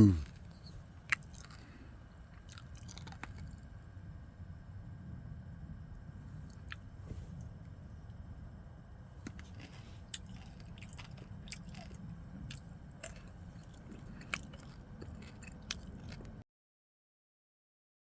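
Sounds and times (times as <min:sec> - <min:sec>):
person chewing crunchy nuts: 0:00.0 - 0:03.7, 0:06.3 - 0:06.9, 0:09.2 - 0:16.4
low steady rumble: 0:00.0 - 0:16.4.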